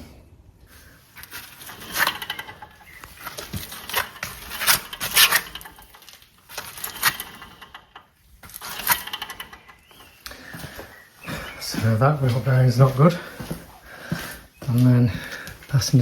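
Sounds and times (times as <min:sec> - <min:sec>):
wheel bearing grinding: 0:01.1 - 0:10.9.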